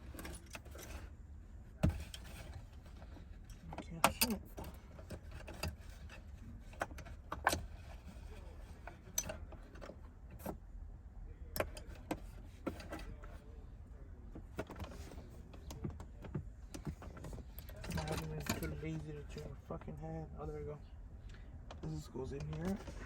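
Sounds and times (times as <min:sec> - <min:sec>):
faint low hum: 0:00.0 - 0:23.0
car interior parts clicking: 0:14.4 - 0:20.0.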